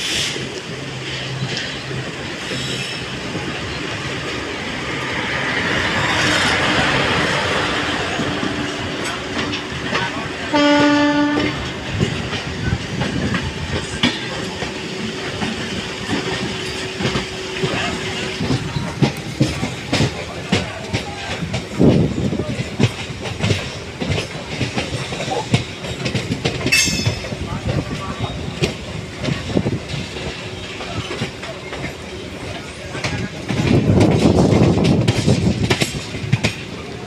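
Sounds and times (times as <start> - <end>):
hiss: 0.0 - 0.6
train wheels clicking over rail joints: 0.0 - 37.0
locomotive horn blast: 10.5 - 11.7.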